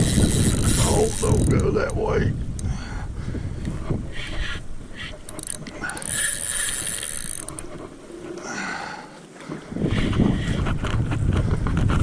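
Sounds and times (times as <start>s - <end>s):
fishing reel clicking and whirring: 0.0s - 2.7s, 3.6s - 7.8s.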